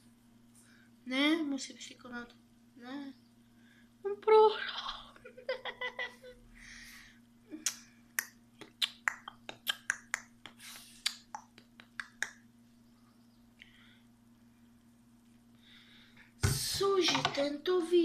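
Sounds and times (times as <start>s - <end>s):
breath: 6.6s - 7.2s, 13.6s - 14.1s, 15.6s - 16.3s
person's voice: 16.4s - 18.0s.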